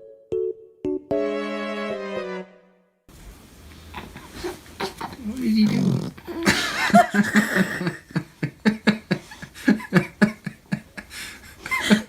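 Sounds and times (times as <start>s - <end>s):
person laughing: 4.2s - 12.0s.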